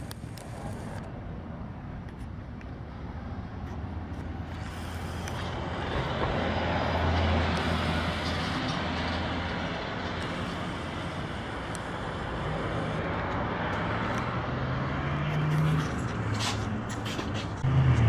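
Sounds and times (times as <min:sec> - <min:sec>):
road noise: 0:00.0 - 0:18.0
vehicle engine running: 0:04.1 - 0:14.4.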